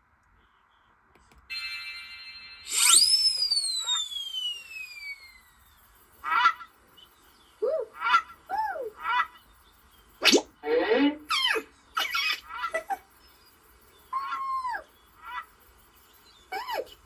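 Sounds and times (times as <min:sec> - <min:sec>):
long falling whistle: 0:01.5 - 0:05.8.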